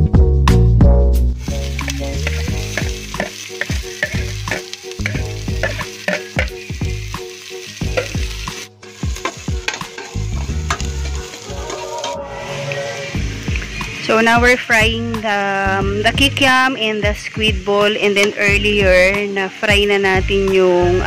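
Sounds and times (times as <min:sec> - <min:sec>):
background music with a beat: 0:00.0 - 0:15.2
onion sizzling in hot oil: 0:01.4 - 0:21.0
spoon stirring in a pot: 0:02.2 - 0:06.6.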